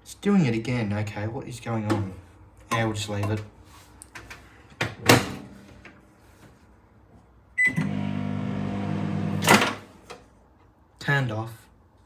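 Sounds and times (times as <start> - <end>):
microwave oven humming: 7.6 - 10.1.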